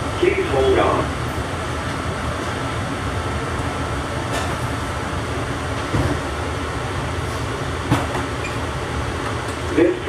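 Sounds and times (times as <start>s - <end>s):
train car low rumble: 0.0s - 10.0s.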